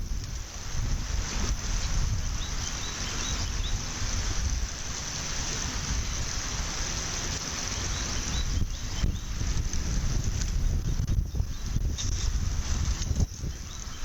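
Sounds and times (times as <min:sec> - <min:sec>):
wind buffeting microphone: 0:00.0 - 0:14.0
bird chirping: 0:02.4 - 0:03.8, 0:07.7 - 0:09.4, 0:11.2 - 0:11.8, 0:13.4 - 0:14.0.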